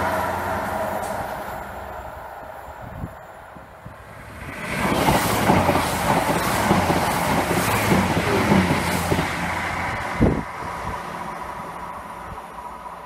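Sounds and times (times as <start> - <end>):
passing train rumble: 0.0 - 13.0.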